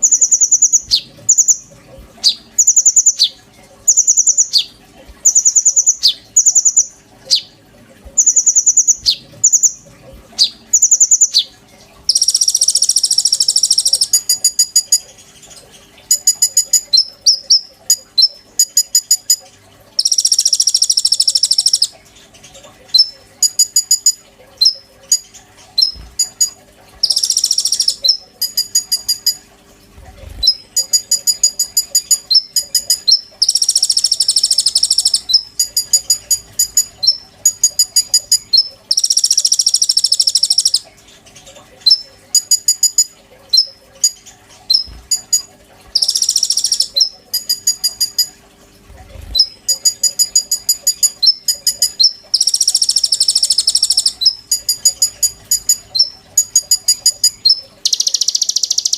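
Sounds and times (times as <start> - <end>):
harsh buzzy bird chattering: 0.0 - 9.8, 10.4 - 11.5, 12.1 - 19.4, 20.0 - 29.4, 30.1 - 48.3, 49.1 - 58.9
high clipped bird chirps: 30.4 - 40.9, 49.3 - 58.9.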